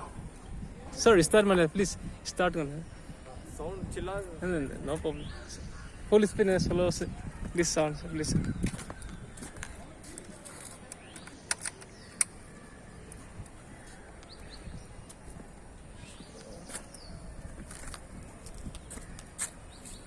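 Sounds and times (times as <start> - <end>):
sharp clicks: 10.7 - 12.4
faint bird chirps: 10.9 - 17.7.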